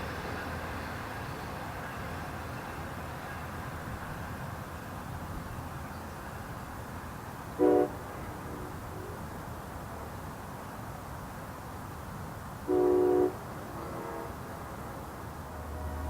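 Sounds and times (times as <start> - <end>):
locomotive air horn blast: 7.6 - 9.2, 12.7 - 16.0.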